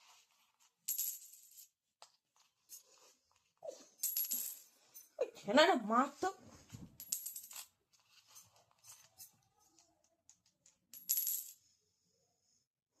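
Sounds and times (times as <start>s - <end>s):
coins clinking: 0.9s - 1.7s, 4.0s - 5.1s, 7.0s - 9.4s, 10.9s - 11.6s.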